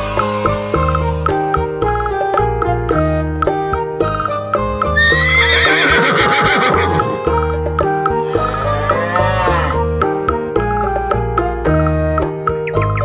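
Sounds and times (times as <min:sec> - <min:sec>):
cheerful children's music: 0:00.0 - 0:13.0
horse whinny: 0:05.0 - 0:07.3, 0:08.3 - 0:09.9
rising and falling animal call: 0:05.0 - 0:07.3, 0:08.2 - 0:10.0.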